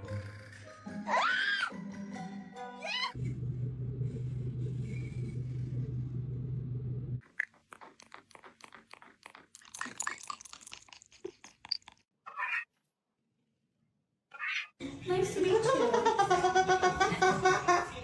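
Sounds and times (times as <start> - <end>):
low hum: 3.2 - 7.2
parrot chewing with its beak: 7.2 - 12.0.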